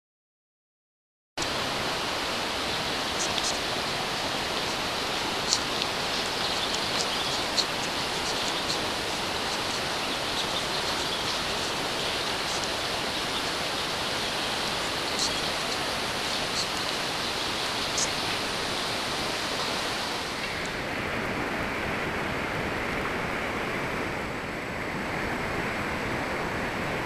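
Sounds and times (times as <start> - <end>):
rushing water: 1.4 - 27.0
small sharp ticks and splashes: 2.2 - 19.8.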